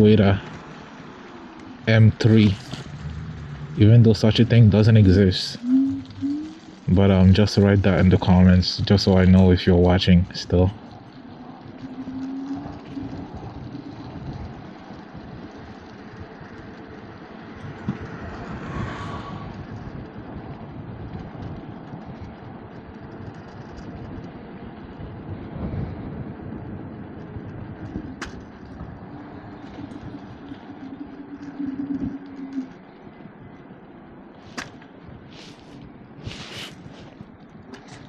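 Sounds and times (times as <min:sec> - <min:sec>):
vehicle passing: 0:00.0 - 0:37.4
low steady hum: 0:00.0 - 0:38.0
road noise rumble and hiss: 0:00.0 - 0:38.0.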